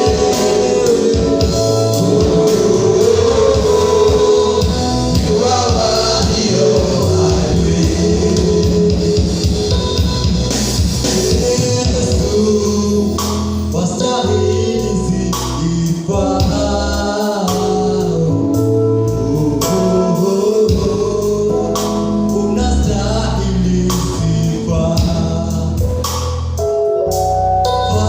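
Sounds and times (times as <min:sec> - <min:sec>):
drums beating: 0:00.0 - 0:12.6
gospel singing: 0:00.0 - 0:25.9, 0:27.7 - 0:28.0
sustained bass line: 0:00.0 - 0:28.0.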